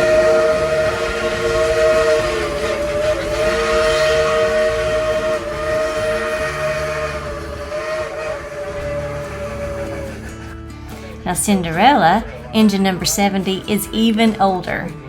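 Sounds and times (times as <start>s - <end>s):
steam locomotive whistle: 0.0s - 10.7s
rumble of moving train: 0.0s - 15.0s.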